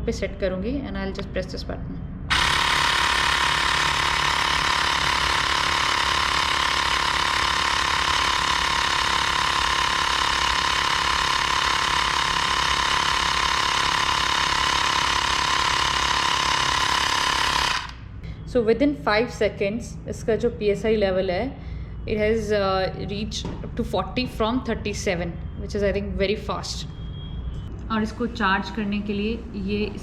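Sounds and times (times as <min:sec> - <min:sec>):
electric air compressor buzzing: 0:02.3 - 0:18.0.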